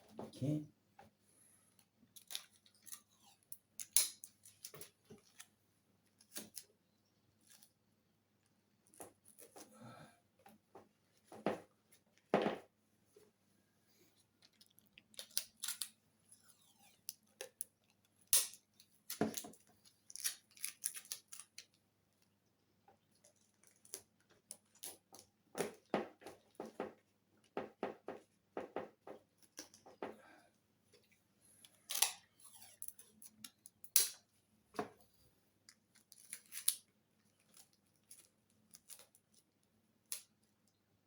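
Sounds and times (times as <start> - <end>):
tape snipping and crackling: 2.2 - 5.5, 16.7 - 21.7, 31.9 - 34.2.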